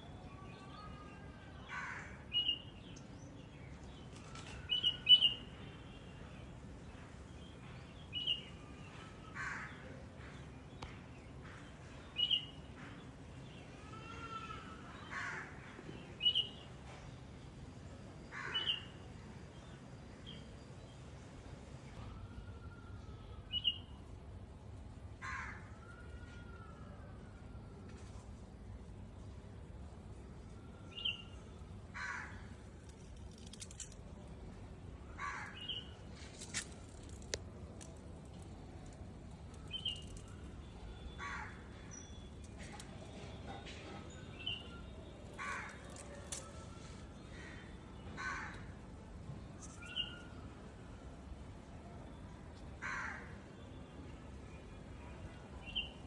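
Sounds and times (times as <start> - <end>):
low background noise: 0.0 - 56.0
crow cawing: 25.2 - 25.7, 32.0 - 32.5, 35.2 - 35.6, 41.2 - 41.6, 48.2 - 48.7, 52.8 - 53.3
bird chirping: 39.5 - 41.2.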